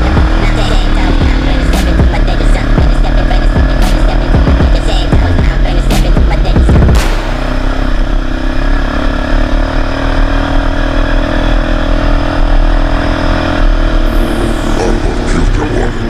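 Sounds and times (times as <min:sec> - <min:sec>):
quad bike engine running: 0:00.0 - 0:16.0.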